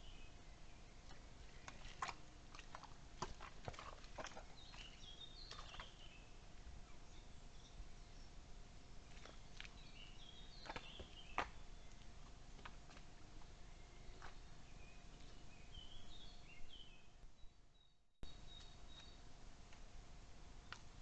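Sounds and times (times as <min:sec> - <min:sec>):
songbird singing: 0:00.0 - 0:19.3
faint steady hum: 0:00.0 - 0:21.0.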